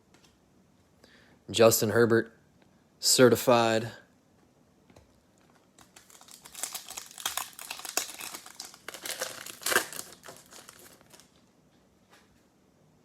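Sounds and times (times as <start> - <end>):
plastic wrapper crinkling: 5.4 - 11.5.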